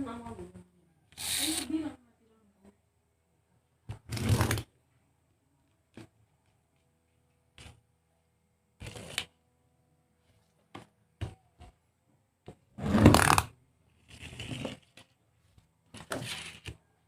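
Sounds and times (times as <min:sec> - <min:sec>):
rustling and scraping: 0:12.7 - 0:16.8.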